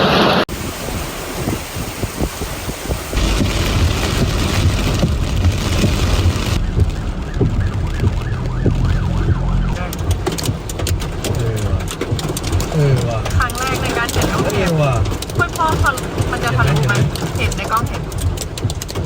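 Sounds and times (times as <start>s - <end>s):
hail and rain drumming on vehicle: 0.1s - 19.0s
hailstone cracks: 3.1s - 9.0s, 9.8s - 19.0s
warbling siren-like tone: 6.6s - 9.8s.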